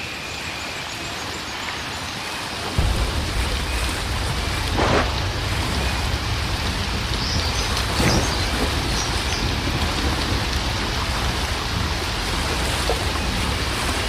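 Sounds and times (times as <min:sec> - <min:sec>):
heavy rain: 0:00.0 - 0:14.0
thunder rumbling: 0:02.8 - 0:14.0.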